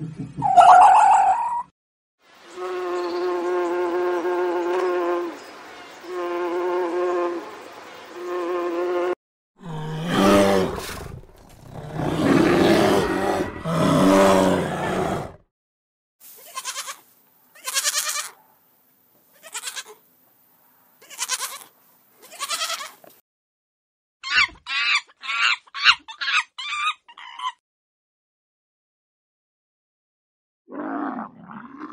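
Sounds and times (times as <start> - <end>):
animal calls: 0.4 - 1.7, 9.6 - 15.4, 24.2 - 27.6.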